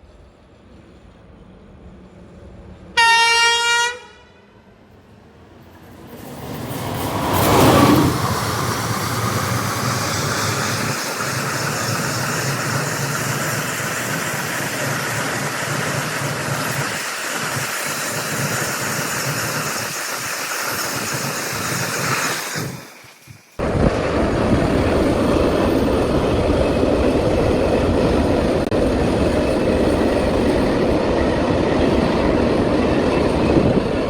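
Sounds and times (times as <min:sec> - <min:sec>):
train running on rails: 0:00.0 - 0:34.0.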